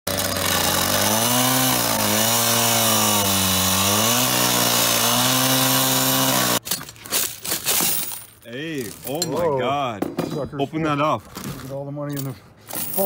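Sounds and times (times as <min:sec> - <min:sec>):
power tool cutting: 0:00.1 - 0:06.6.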